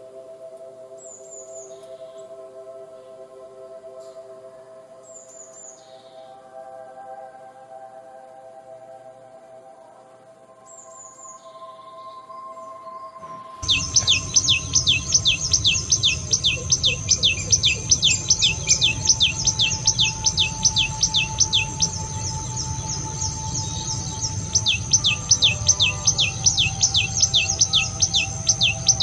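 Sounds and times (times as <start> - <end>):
bird singing sharp notes: 13.0 - 29.0
high background drone: 13.2 - 29.0.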